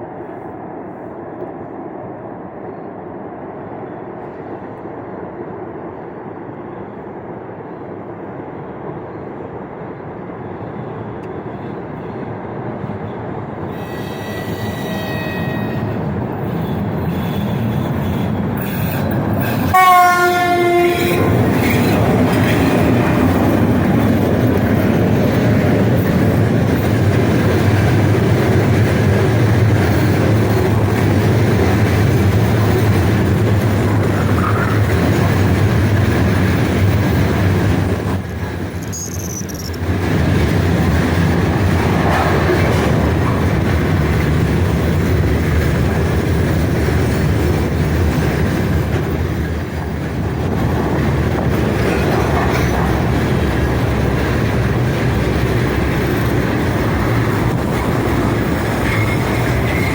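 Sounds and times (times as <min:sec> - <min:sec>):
freight train rumbling past: 0:00.0 - 0:59.9
locomotive horn blast: 0:13.8 - 0:18.9, 0:19.6 - 0:21.4.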